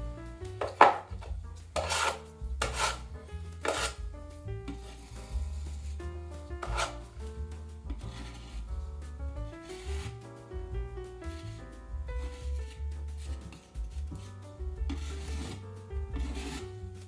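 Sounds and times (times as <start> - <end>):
background music: 0.0 - 17.0
drywall knife scraping: 0.6 - 4.0, 4.7 - 7.3, 7.9 - 8.8, 12.2 - 17.0.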